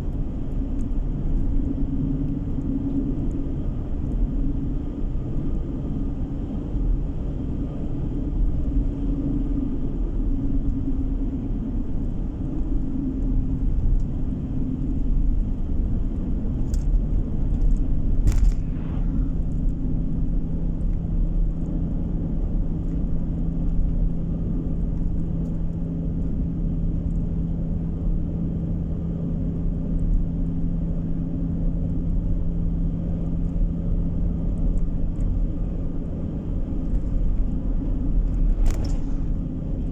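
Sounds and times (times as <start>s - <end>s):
steady low hum: 0.0s - 22.4s, 33.8s - 39.9s
car engine and road rumble: 0.0s - 39.9s.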